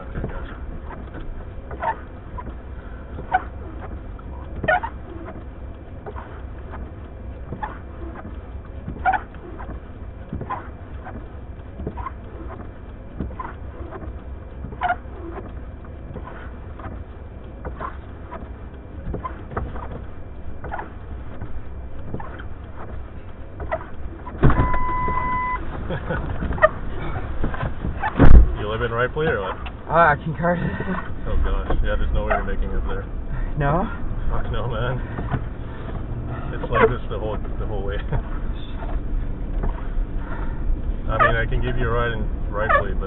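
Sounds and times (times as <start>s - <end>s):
car engine idling: 0.0s - 43.0s
windshield wipers squeaking: 0.0s - 43.0s
steady electronic beep: 24.6s - 25.6s.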